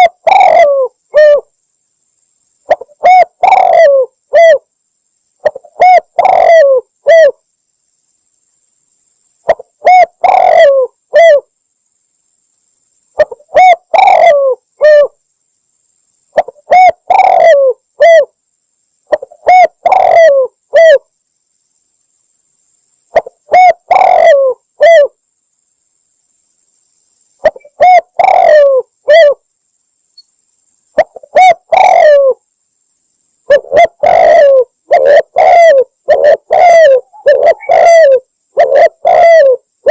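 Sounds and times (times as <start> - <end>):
dove cooing: 0.0 - 1.5, 2.7 - 4.7, 5.4 - 7.4, 9.5 - 11.5, 13.2 - 15.2, 16.4 - 18.3, 19.1 - 21.1, 23.1 - 25.2, 27.4 - 29.4, 31.0 - 32.4, 33.5 - 39.9.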